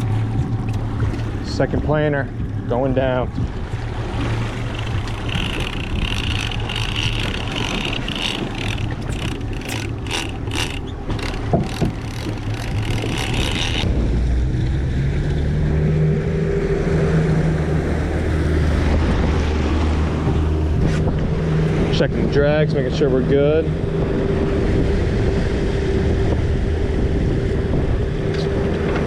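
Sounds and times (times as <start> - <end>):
boat engine running: 0.0 - 29.0
wind on microphone: 0.0 - 29.0.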